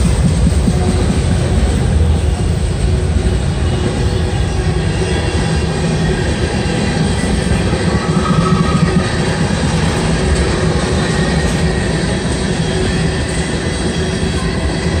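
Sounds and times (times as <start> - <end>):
freight train wheels rumbling on rails: 0.0 - 15.0.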